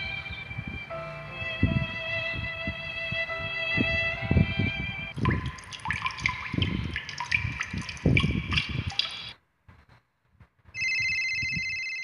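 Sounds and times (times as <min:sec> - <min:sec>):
water drops plinking: 0:05.2 - 0:09.3
electronic telephone ring: 0:10.8 - 0:12.0.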